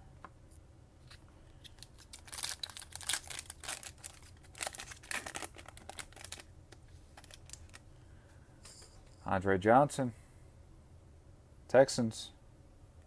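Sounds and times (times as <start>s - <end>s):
cards and wrapper rustling: 1.1s - 7.8s.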